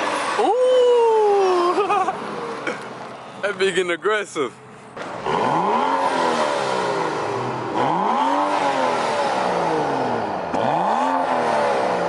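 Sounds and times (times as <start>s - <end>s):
car engine revving: 5.0s - 12.0s.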